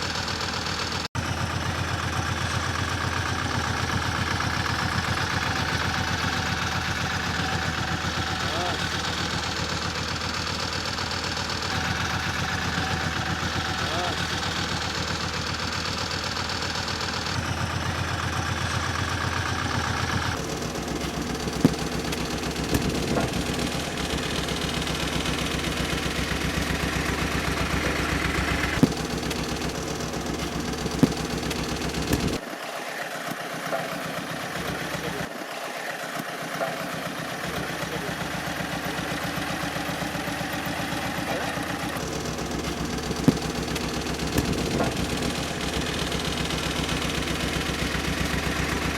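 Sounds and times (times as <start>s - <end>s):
road roller engine running: 0.0s - 32.5s, 33.4s - 48.9s
fruit bursting cracks: 20.4s - 32.4s, 42.0s - 48.9s.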